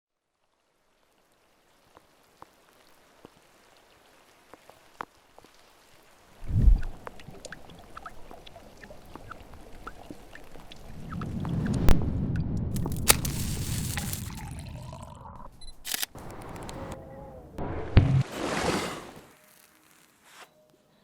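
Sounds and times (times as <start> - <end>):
water lapping and bubbling: 5.5 - 11.7, 12.8 - 15.5
water drips: 6.8 - 11.9, 12.8 - 16.8
water splash: 12.8 - 15.2, 17.8 - 20.2.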